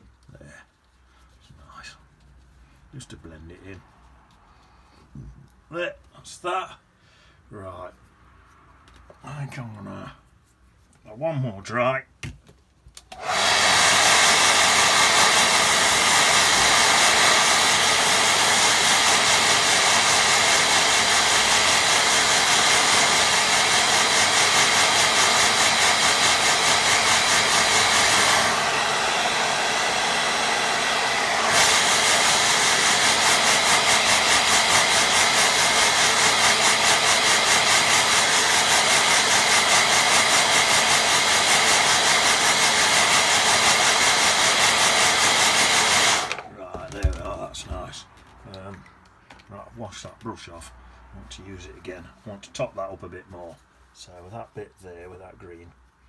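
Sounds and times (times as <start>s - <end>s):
hair dryer blowing: 13.1s - 47.2s.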